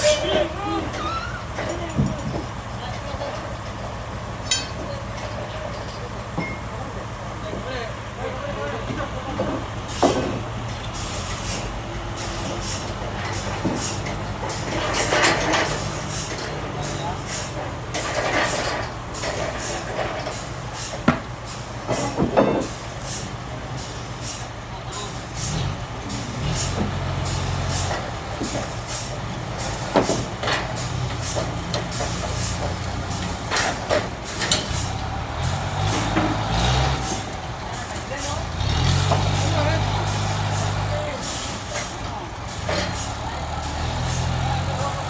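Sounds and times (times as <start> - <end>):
sawmill machinery droning: 0.0 - 45.0
sharp clatters and knocks: 4.4 - 6.8, 12.4 - 23.3, 26.1 - 40.5.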